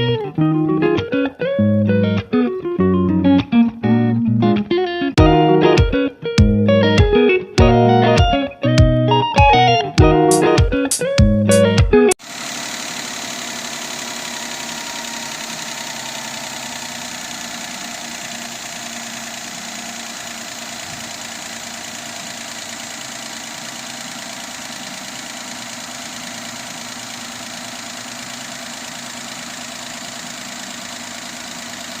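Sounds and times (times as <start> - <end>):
car engine idling: 12.2 - 32.0.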